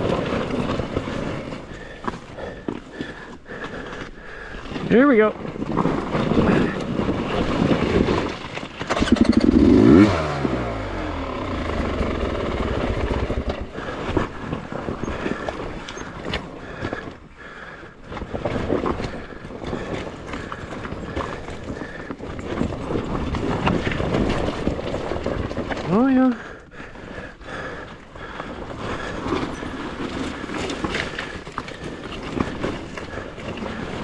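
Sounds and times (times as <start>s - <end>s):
rocks clattering under tyres: 0.0s - 17.3s, 18.0s - 26.2s, 28.2s - 34.0s
dirt bike engine revving: 8.8s - 14.4s.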